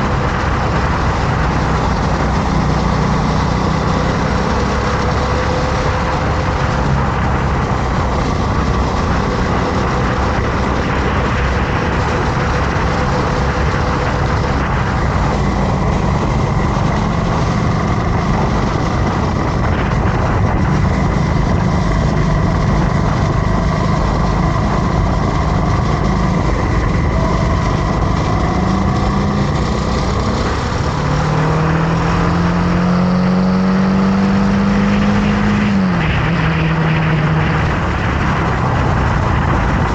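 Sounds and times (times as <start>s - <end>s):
motorcycle engine accelerating: 0.0s - 39.9s
steady rushing noise: 0.0s - 39.9s.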